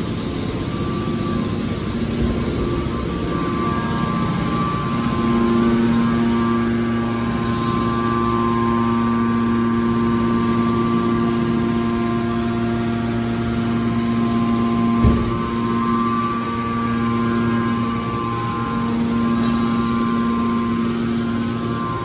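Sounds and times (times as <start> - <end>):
hydraulic power unit humming: 0.0 - 22.0
thump: 15.0 - 15.6.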